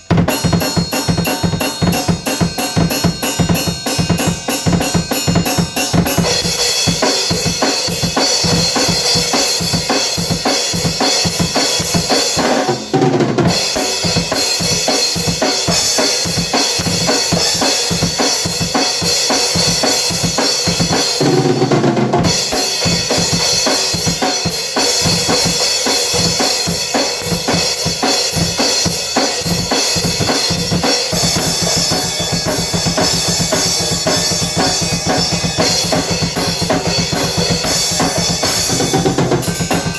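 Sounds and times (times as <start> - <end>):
cymbals: 0.0 - 12.8, 13.5 - 21.4, 22.2 - 39.9
drum kit playing: 0.0 - 39.9.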